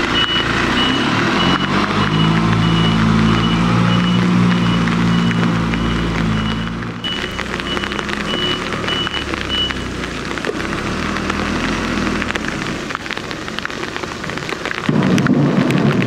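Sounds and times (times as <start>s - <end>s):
vehicle electronic beeper: 0.0s - 10.0s
rain on snow and pavement: 0.0s - 16.0s.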